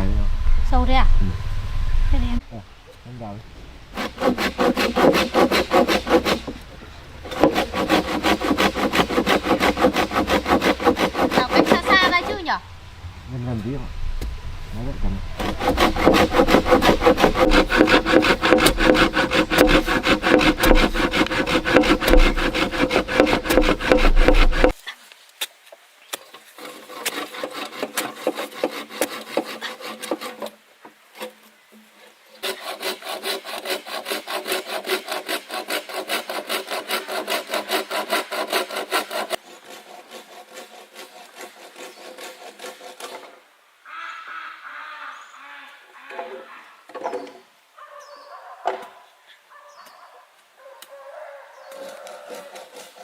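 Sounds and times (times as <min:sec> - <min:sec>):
hand saw cutting wood: 0:03.9 - 0:06.6, 0:07.2 - 0:12.6, 0:15.4 - 0:24.8, 0:26.2 - 0:30.6, 0:31.2 - 0:31.4, 0:32.0 - 0:43.4, 0:51.7 - 0:53.0.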